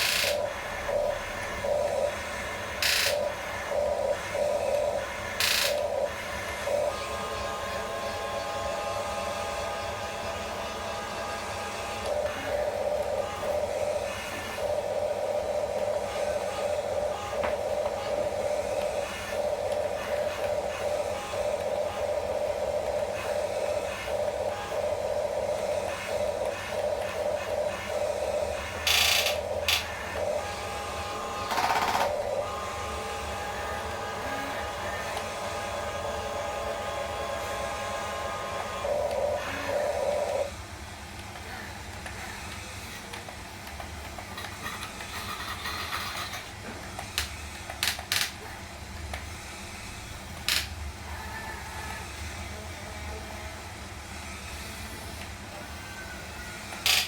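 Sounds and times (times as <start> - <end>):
loud buzzing bursts: 0.0 - 40.6
toy electric motors whining: 0.0 - 40.6, 41.2 - 53.6, 54.3 - 57.0.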